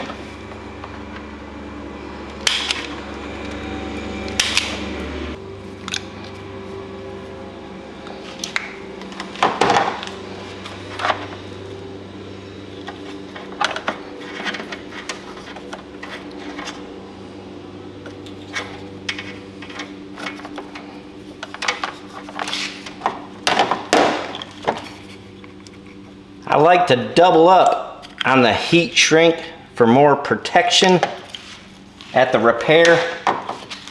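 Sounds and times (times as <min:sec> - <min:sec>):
low electrical hum: 0:00.0 - 0:33.9
small tools clicking and tapping: 0:05.8 - 0:06.4, 0:08.0 - 0:11.4, 0:12.8 - 0:16.9, 0:18.0 - 0:26.0.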